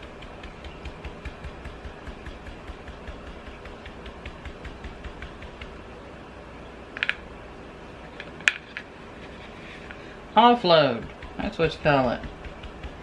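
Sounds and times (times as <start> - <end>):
stencil brush tapping: 0.0 - 5.8, 10.7 - 13.0.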